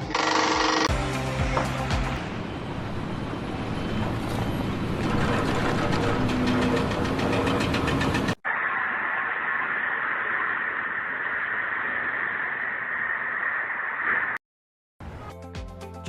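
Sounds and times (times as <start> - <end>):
heavy machinery running: 1.6 - 12.6
mechanical clatter: 4.9 - 8.4.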